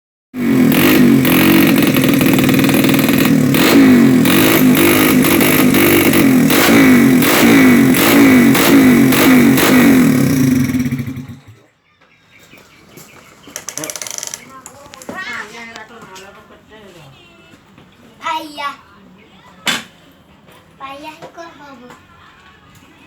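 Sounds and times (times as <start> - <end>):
motorcycle engine revving: 0.4 - 11.7, 13.0 - 15.2.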